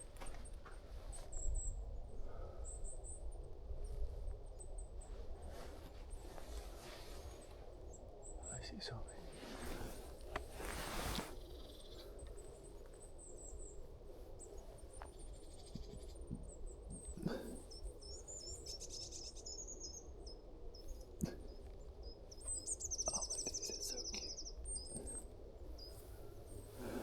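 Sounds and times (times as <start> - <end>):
small birds chirping: 0.0 - 27.0
rustle: 5.2 - 7.8, 9.2 - 13.7.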